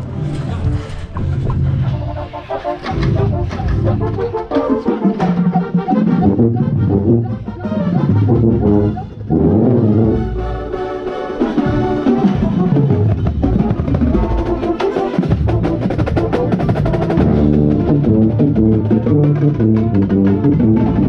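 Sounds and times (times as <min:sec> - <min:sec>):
sustained brass chords: 0:00.0 - 0:21.0
snare and bass drum strokes: 0:11.4 - 0:21.0.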